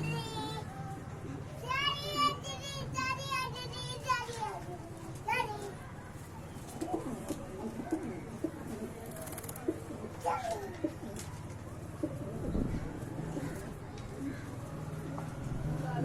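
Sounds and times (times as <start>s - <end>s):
pigeons cooing: 5.8s - 15.5s.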